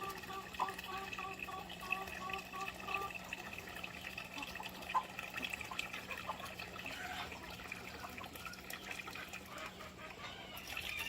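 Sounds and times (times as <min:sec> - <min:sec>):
water drips: 0:00.0 - 0:11.0
water trickling and splashing: 0:00.0 - 0:11.0.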